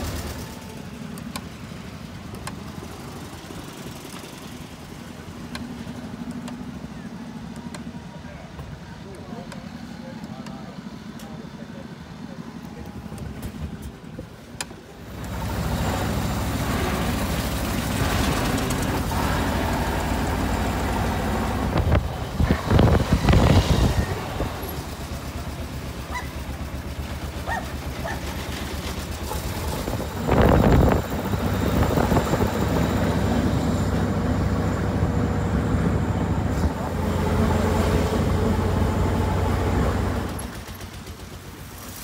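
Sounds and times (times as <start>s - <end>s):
road and wind noise: 0.0s - 42.0s
car engine running: 15.0s - 41.6s.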